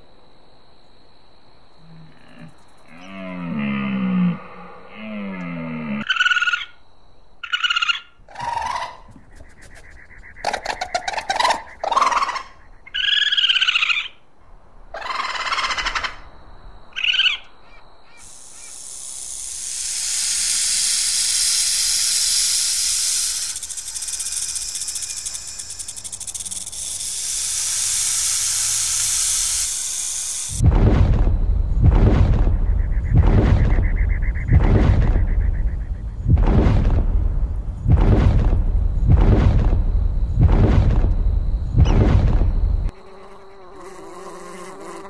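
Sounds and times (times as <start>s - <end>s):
deep dinosaur sound effect: 1.9s - 6.1s, 30.6s - 42.9s
snake hissing: 18.1s - 30.6s.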